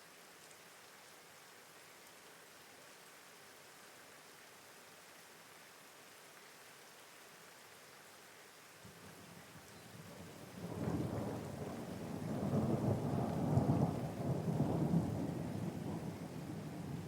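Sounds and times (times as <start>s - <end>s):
steady rain: 0.0s - 17.0s
thunder rumbling: 10.2s - 17.0s.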